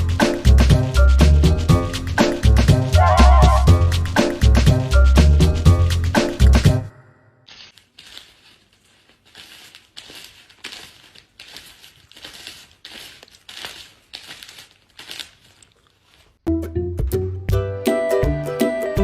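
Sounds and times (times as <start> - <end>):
short rustling crinkling: 7.5 - 16.5.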